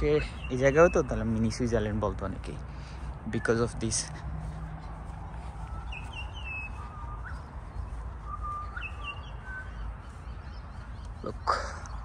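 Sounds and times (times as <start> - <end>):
birds chirping: 0.0 - 12.0
steady low rumble: 0.0 - 12.0
whistled bird notes: 5.7 - 12.0.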